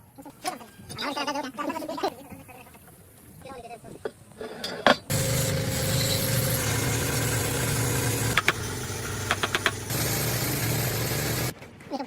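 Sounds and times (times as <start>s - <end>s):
engine running steadily: 5.1s - 11.5s.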